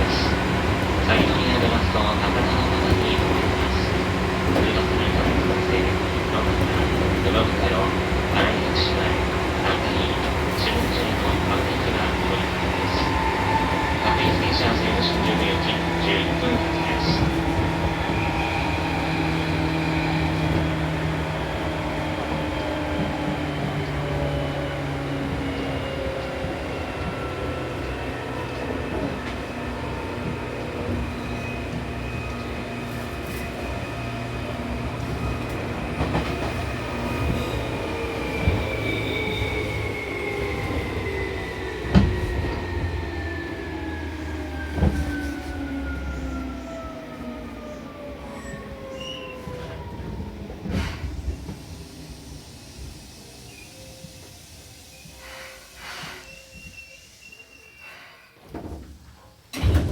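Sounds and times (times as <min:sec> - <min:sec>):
wheels rumbling on rail: 0:00.0 - 0:57.1.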